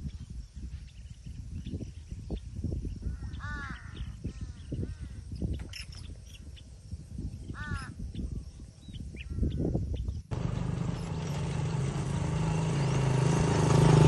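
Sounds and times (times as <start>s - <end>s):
crows cawing: 3.2s - 4.0s, 7.6s - 8.0s.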